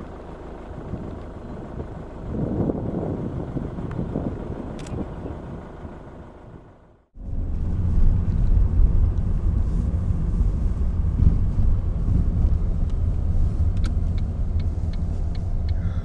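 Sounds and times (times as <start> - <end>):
car road and engine rumble: 0.0 - 16.0
light evenly spaced ticks: 12.5 - 16.0.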